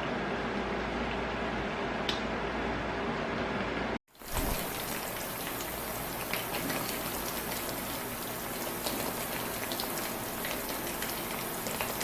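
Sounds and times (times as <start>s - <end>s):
chicken deep-frying in oil: 4.1s - 12.0s.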